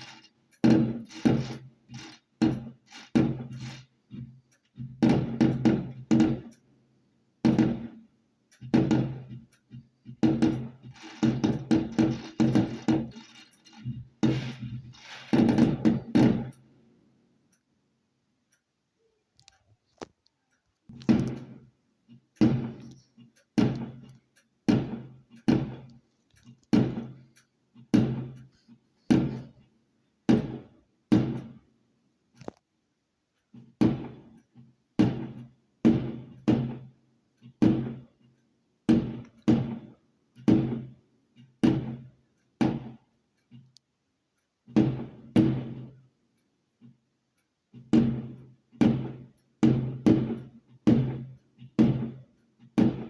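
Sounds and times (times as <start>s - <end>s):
firework barrage firing: 0.0s - 6.6s, 7.4s - 8.0s, 8.6s - 9.6s, 10.2s - 16.6s, 20.9s - 21.6s, 22.4s - 24.1s, 24.7s - 25.9s, 26.7s - 27.3s, 27.9s - 29.6s, 30.3s - 31.6s, 33.8s - 34.3s, 35.0s - 36.9s, 37.6s - 38.0s, 38.9s - 39.9s, 40.5s - 40.9s, 41.6s - 42.0s, 42.6s - 43.0s, 44.8s - 45.9s, 48.0s - 52.2s, 52.8s - 53.0s.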